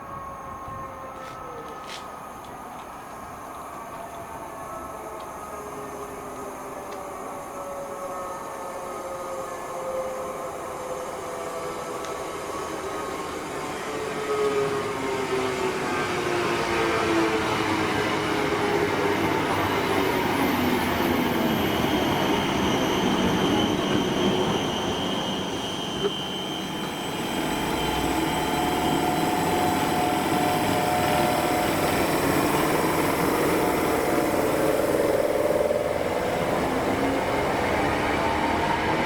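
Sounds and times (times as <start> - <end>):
train wheels rumbling on rail: 9.7 - 39.0
whining tones bending in pitch: 20.7 - 39.0.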